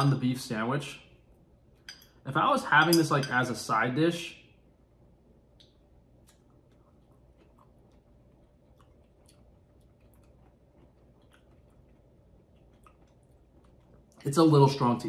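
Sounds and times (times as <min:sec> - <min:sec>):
faint chewing of pickled vegetables: 0:05.4 - 0:14.8.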